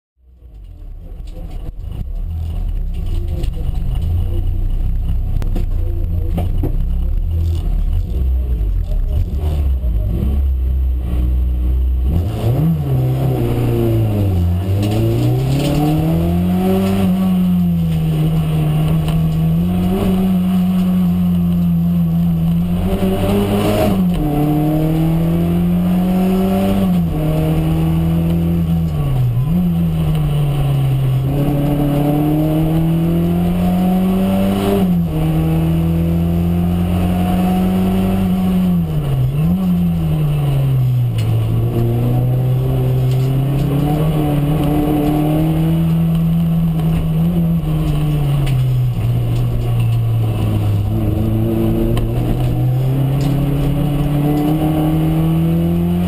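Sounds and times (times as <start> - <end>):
race car engine revving: 0.6 - 56.0.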